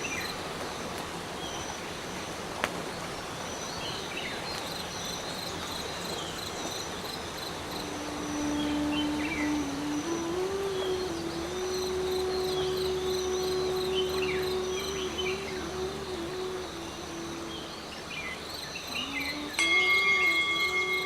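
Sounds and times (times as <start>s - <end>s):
insects chirping: 0.0s - 21.0s
steady higher tone: 18.9s - 21.0s.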